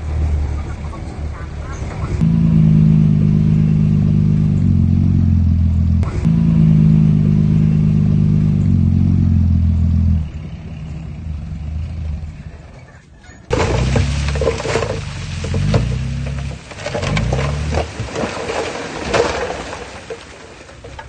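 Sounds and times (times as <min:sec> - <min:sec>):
heavy diesel engine running: 0:00.0 - 0:12.8.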